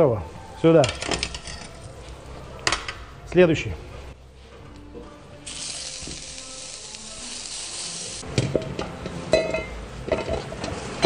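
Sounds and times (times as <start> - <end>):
vegetables sizzling in hot oil: 5.5 - 8.2.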